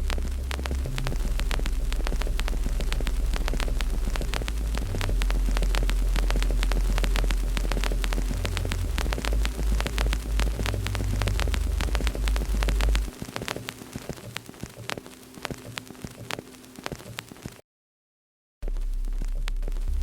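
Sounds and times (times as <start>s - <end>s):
loud low rumble: 0.0s - 13.1s, 18.6s - 20.0s
wood fire crackling: 0.0s - 17.6s.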